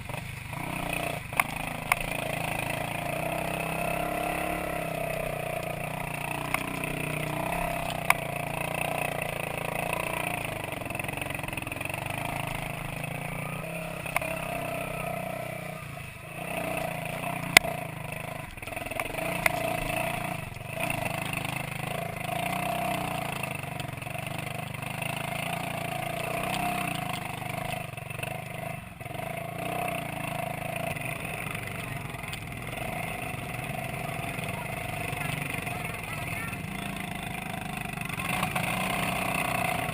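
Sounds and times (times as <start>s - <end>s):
two-stroke motorcycle riding: 0.0s - 39.9s.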